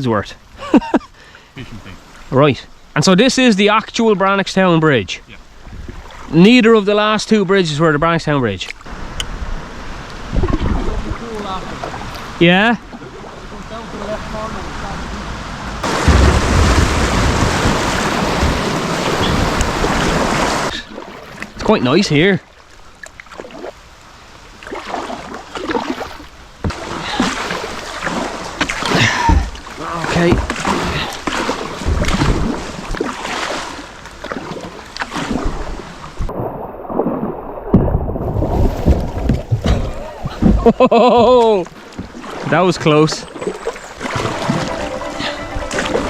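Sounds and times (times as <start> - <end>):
paddle strokes splashing: 5.4 - 6.4, 8.8 - 21.7, 22.4 - 46.0
wind buffeting microphone: 5.6 - 6.1, 8.9 - 12.4
river water rushing: 8.8 - 21.6, 22.5 - 37.6, 41.5 - 46.0.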